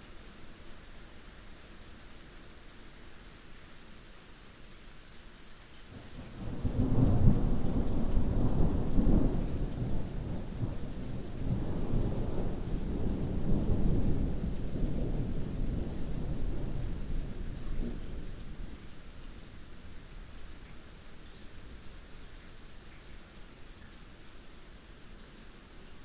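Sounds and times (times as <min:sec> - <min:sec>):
heavy rain: 0:00.0 - 0:26.0
thunder rumbling: 0:06.2 - 0:19.2.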